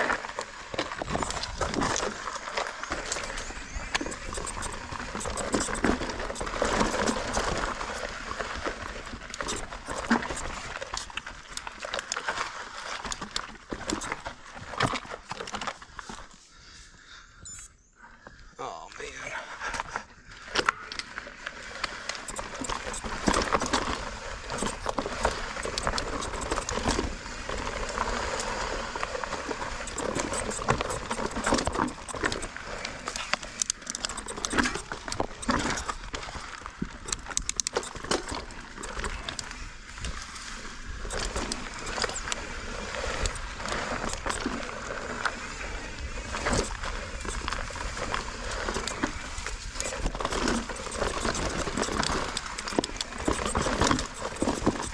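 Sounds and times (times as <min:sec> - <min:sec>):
bike tyre noise on trail: 0:00.0 - 0:54.9.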